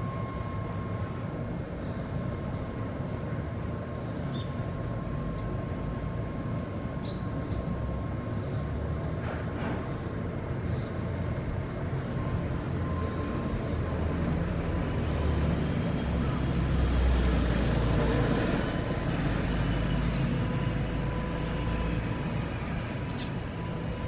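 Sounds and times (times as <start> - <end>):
motor vehicle passing: 14.1 - 23.0.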